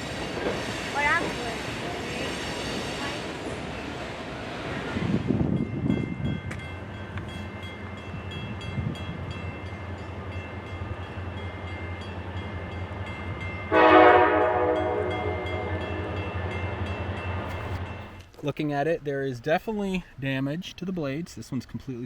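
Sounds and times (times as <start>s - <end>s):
locomotive drone: 0.0s - 18.3s
train air horn: 13.7s - 16.4s.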